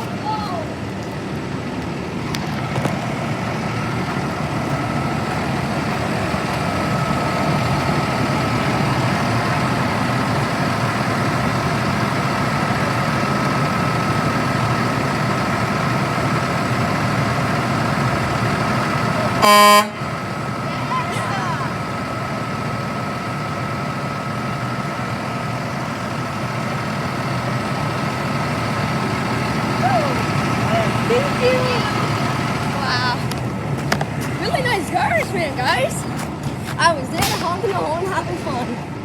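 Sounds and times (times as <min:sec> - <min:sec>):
truck diesel engine running: 0:00.0 - 0:39.0
truck horn blast: 0:19.3 - 0:21.8.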